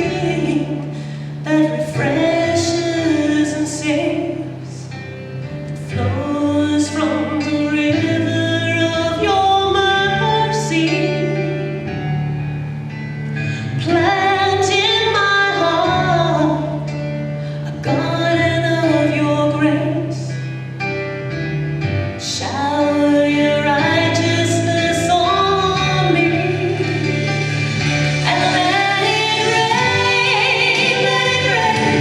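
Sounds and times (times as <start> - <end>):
woman singing gospel song: 0.0 - 4.9, 5.9 - 11.8, 13.8 - 16.9, 17.6 - 20.3, 22.2 - 27.3, 28.2 - 32.0
held accompaniment chords: 0.0 - 32.0.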